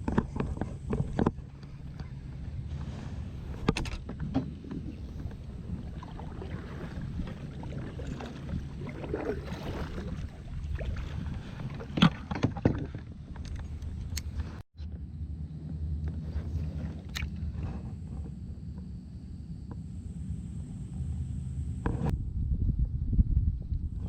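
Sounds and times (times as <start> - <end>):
paddle strokes: 0.0 - 14.6
water sloshing against hull: 0.0 - 14.6, 15.4 - 22.1
wind rumble on microphone: 0.0 - 24.0.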